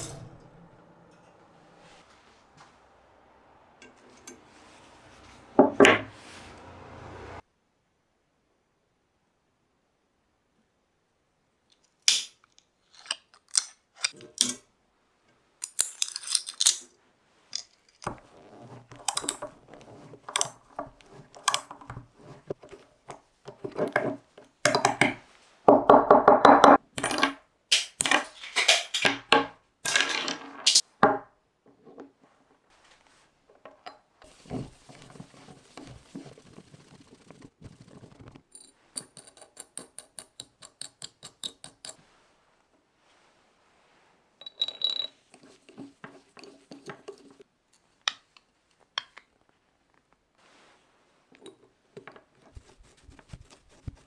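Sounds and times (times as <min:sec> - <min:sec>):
tools clattering on workbench: 0:00.0 - 0:01.8, 0:17.6 - 0:31.2, 0:44.4 - 0:47.4
metal scraping squeal: 0:00.0 - 0:07.4
rapid even ticks: 0:35.4 - 0:38.7.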